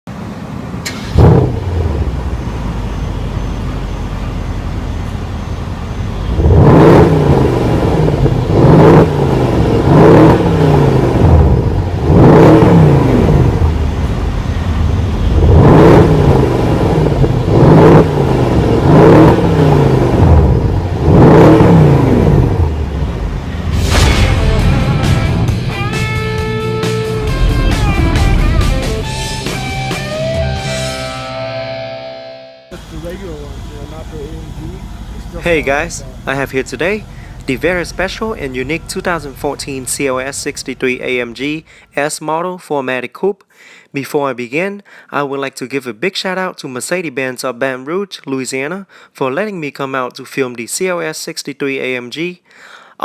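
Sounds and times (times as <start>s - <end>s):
car engine starting and revving: 0.2s - 31.8s, 32.7s - 41.6s.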